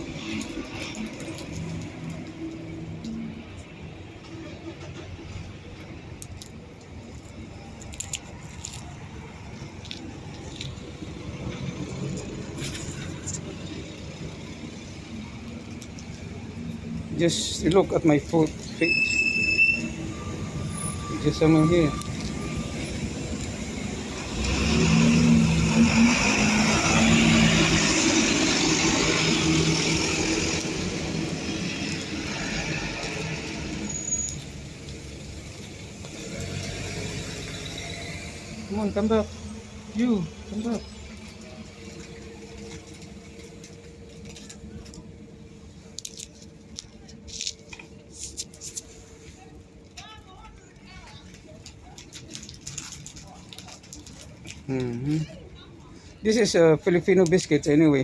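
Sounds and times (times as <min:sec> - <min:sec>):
road traffic rumble: 0:00.0 - 0:58.0
vehicle engine accelerating away: 0:22.2 - 0:34.4, 0:35.2 - 0:43.4.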